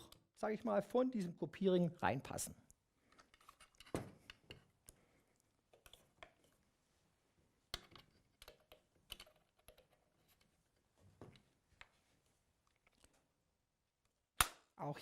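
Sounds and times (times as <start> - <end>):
metal parts clicking and tapping: 7.7 - 10.4.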